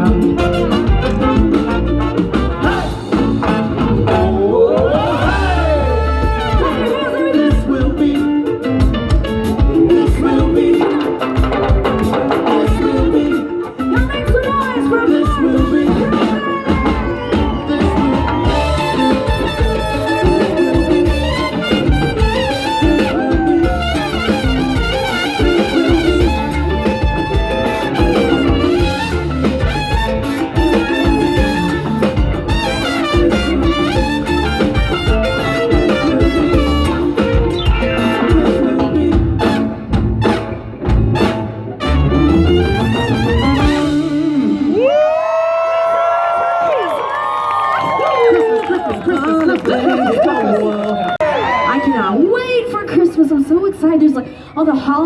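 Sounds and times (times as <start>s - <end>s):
live salsa band with brass: 0.0s - 54.0s.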